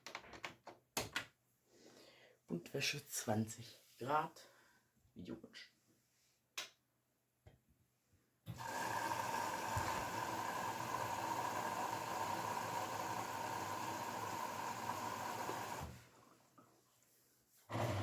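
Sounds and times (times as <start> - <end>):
washing machine taking in water: 8.5 - 16.6.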